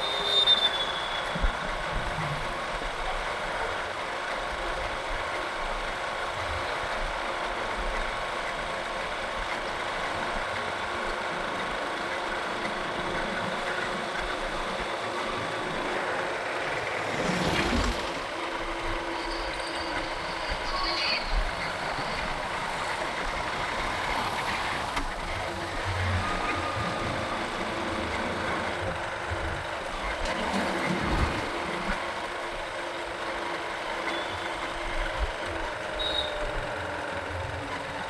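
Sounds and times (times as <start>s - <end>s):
motorcycle engine and road noise: 0.0s - 38.0s.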